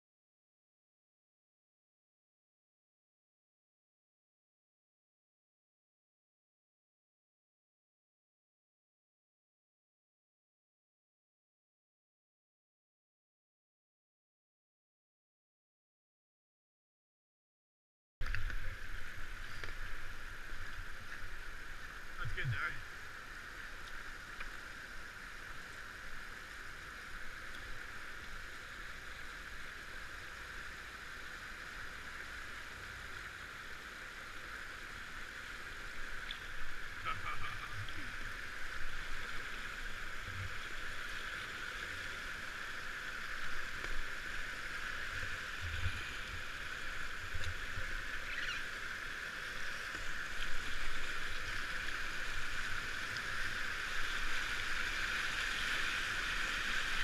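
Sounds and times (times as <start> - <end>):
river water rushing: 18.3 - 57.0.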